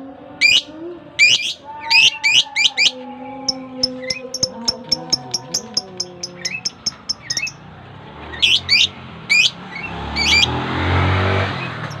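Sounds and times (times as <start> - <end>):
budgerigars chirping: 0.4 - 3.0, 3.8 - 7.6, 8.3 - 10.5.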